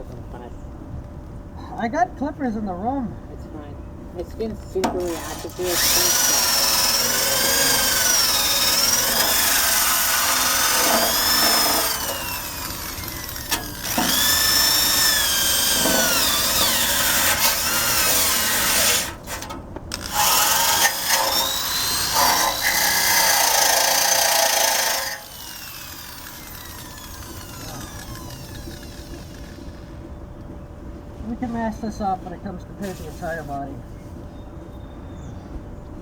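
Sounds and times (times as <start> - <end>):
drill wire brush scouring metal: 4.9 - 29.8.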